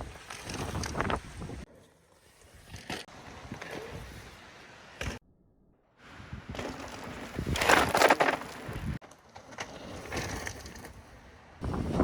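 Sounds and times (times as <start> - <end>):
wind buffeting microphone: 0.0 - 1.7, 6.1 - 8.0, 11.6 - 12.0.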